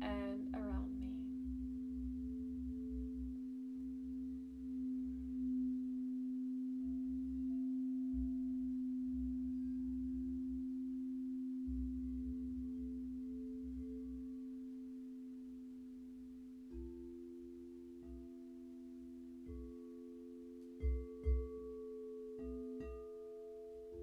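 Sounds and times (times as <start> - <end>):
fainter higher tones: 0.0 - 1.3
low wavering rumble: 0.0 - 14.0
steady pure tone drone: 0.0 - 20.8.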